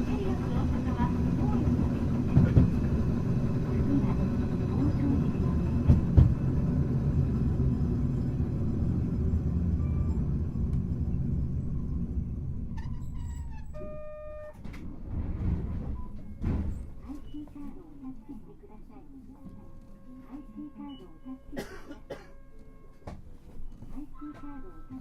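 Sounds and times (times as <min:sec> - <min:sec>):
tram wheels rumbling: 0:00.0 - 0:17.9
brief steady tone: 0:13.7 - 0:14.6.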